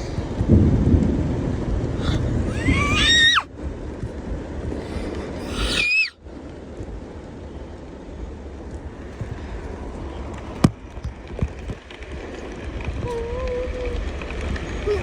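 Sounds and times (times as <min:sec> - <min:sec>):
low rumble: 0:00.0 - 0:05.7
heavy rain: 0:00.0 - 0:15.0
high cry: 0:02.0 - 0:03.5, 0:04.8 - 0:06.2.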